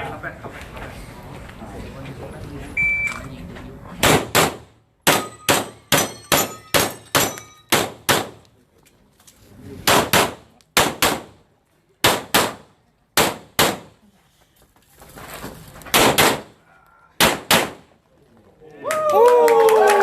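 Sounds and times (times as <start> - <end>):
handgun shots in pairs: 4.0 - 8.4, 9.8 - 11.4, 12.0 - 14.0, 15.9 - 16.6, 17.2 - 17.9
ringing metallic tone: 5.1 - 7.7.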